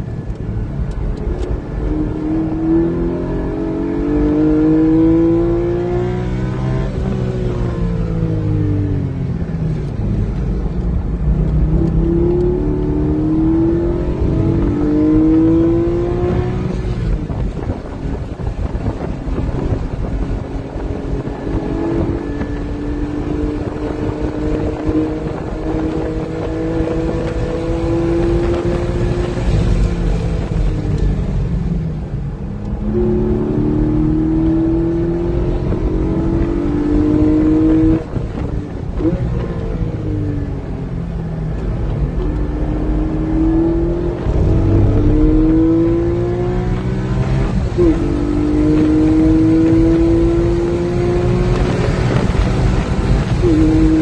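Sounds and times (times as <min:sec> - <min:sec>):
sports car engine revving: 0:00.0 - 0:31.2, 0:32.6 - 0:54.0.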